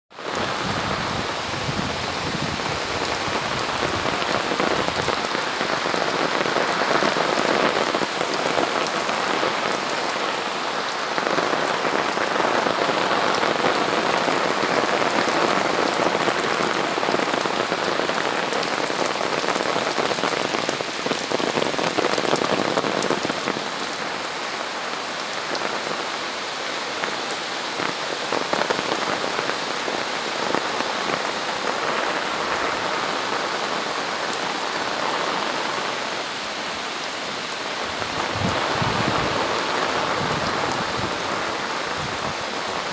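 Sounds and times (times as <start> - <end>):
heavy rain: 0.1 - 42.9
rain pattering on hard surfaces: 0.1 - 42.9.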